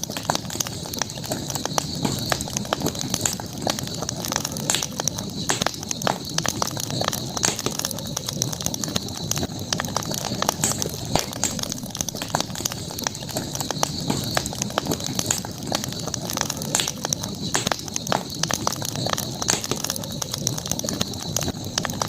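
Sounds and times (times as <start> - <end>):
campfire crackling: 0.0 - 22.0
steady high hiss: 0.0 - 22.0.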